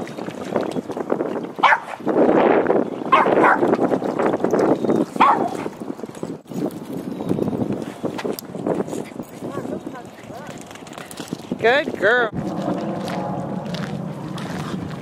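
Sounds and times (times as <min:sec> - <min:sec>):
dog barking: 0:01.6 - 0:02.0, 0:03.1 - 0:03.7, 0:05.2 - 0:05.7.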